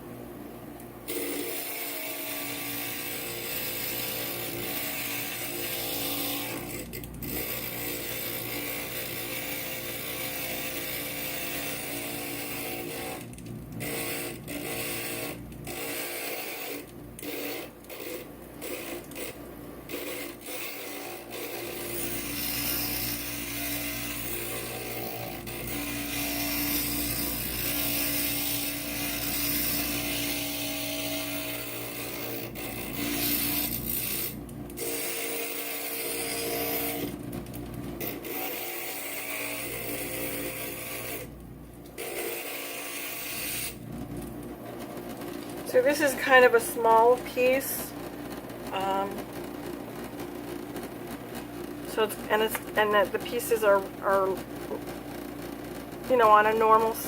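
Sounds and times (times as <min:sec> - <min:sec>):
glass grinder running: 0:01.1 - 0:37.2, 0:38.0 - 0:41.4, 0:42.0 - 0:43.8, 0:45.5 - 0:48.0, 0:48.6 - 0:49.4, 0:51.9 - 0:55.0, 0:56.0 - 0:57.0
gritty glass grinding: 0:02.5 - 0:37.1.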